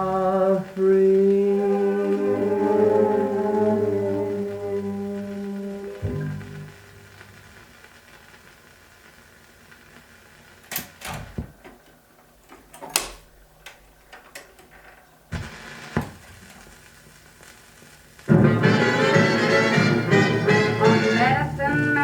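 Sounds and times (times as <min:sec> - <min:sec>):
band music: 0:00.0 - 0:07.7, 0:18.3 - 0:22.0
record surface hiss: 0:00.0 - 0:22.0
record clicks and pops: 0:09.7 - 0:18.4.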